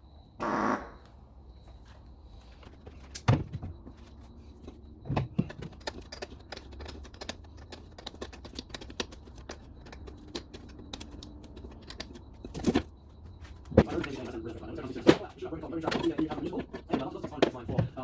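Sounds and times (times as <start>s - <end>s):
hand tools clicking and tapping: 4.6s - 14.1s, 15.8s - 18.0s.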